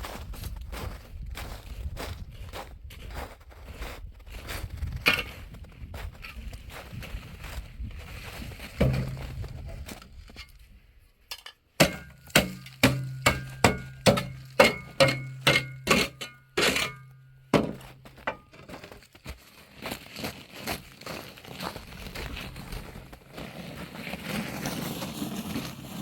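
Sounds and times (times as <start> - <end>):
low ringing hum: 11.8 - 18.3
hammer blows: 11.8 - 18.4.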